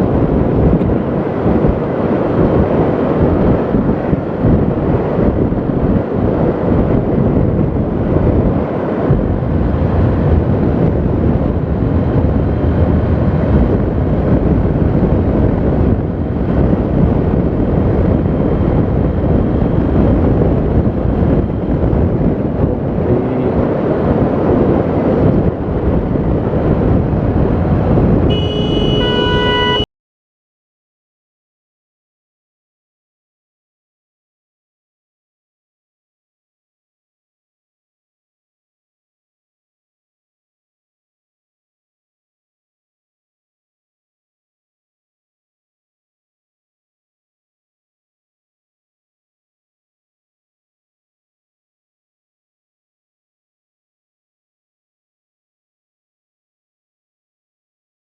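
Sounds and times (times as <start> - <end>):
wind buffeting microphone: 0.0 - 29.8
road and vehicle noise: 0.0 - 29.9
vehicle horn: 28.3 - 29.9.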